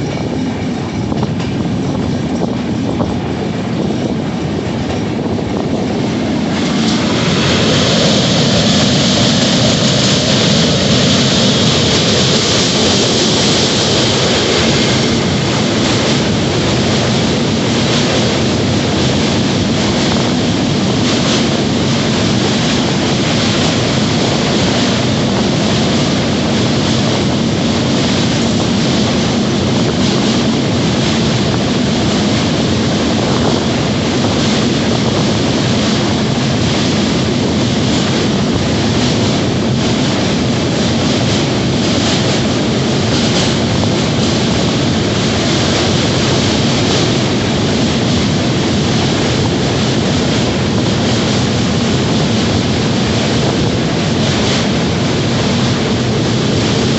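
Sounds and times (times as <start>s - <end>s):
train rumbling along rails: 0.0s - 56.9s.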